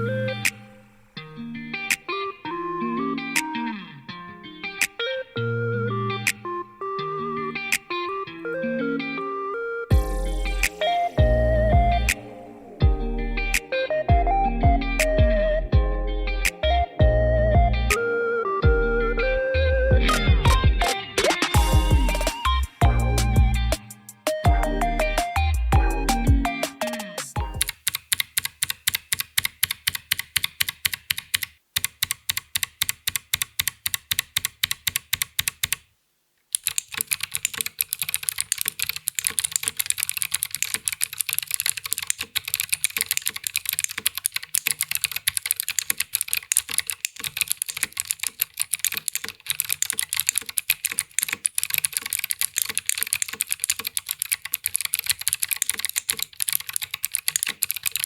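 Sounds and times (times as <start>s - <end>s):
mechanical keyboard typing: 27.4s - 35.9s, 36.5s - 58.0s.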